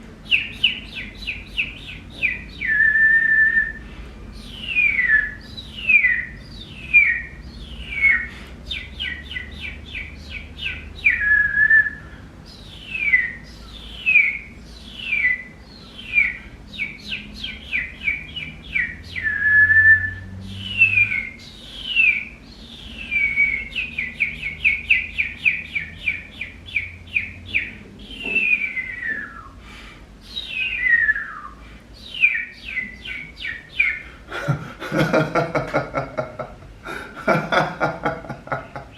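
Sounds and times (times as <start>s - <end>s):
person whistling bird-like calls: 2.6s - 3.9s, 19.2s - 21.3s, 28.1s - 29.6s, 30.6s - 31.6s.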